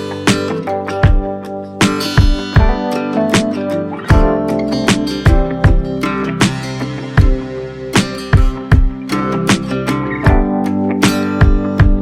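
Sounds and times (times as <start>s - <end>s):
guitar music over a beat: 0.0s - 12.0s
sharp drum hits: 1.1s - 9.7s.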